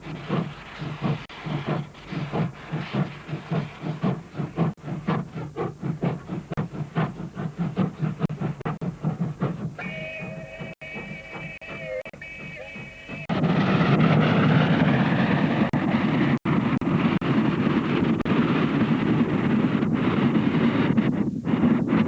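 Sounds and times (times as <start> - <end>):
steam train running: 0.0 - 22.0.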